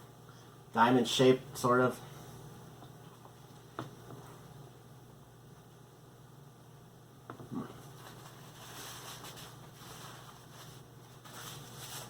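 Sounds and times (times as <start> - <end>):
low electrical hum: 0.0 - 12.0
faint crackly rustling: 7.7 - 12.0.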